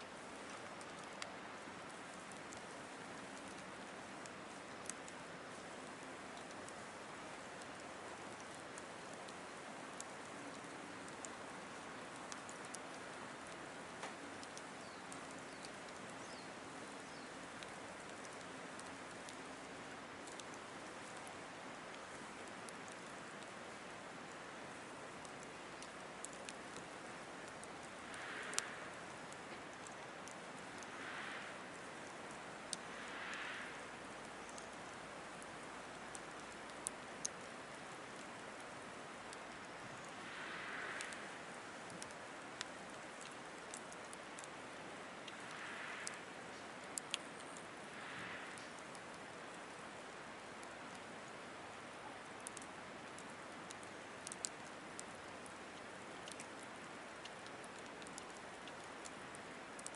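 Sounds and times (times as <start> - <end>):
wood fire crackling: 0.0 - 59.9
burning logs popping: 17.0 - 31.0.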